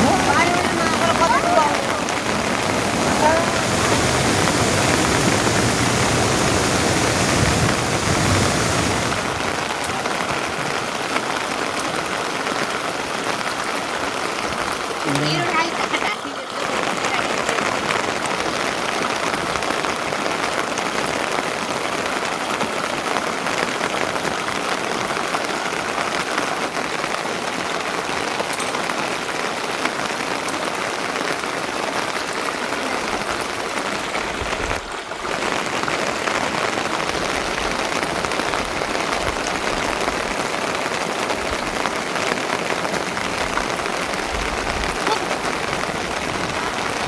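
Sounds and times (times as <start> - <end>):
low rumbling: 0.0 - 10.1
heavy rain falling: 0.0 - 47.0.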